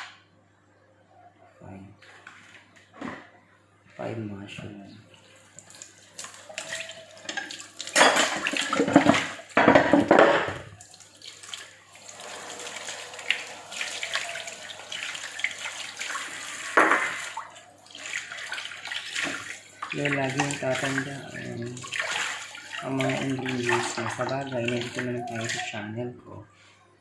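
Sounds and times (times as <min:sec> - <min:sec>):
tap water splashing into sink: 0:05.6 - 0:25.6.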